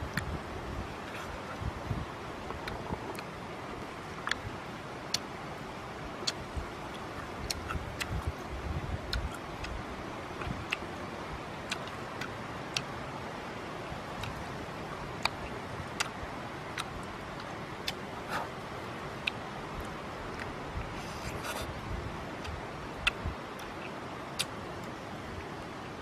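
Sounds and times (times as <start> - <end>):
background hiss: 0.0 - 26.0
mouth clicks and lip smacks chewing: 2.5 - 3.3, 4.2 - 4.5, 6.2 - 8.4, 9.1 - 9.8, 10.4 - 10.9, 11.7 - 12.9, 14.2 - 14.4, 15.2 - 18.6, 19.2 - 21.7, 22.4 - 25.0.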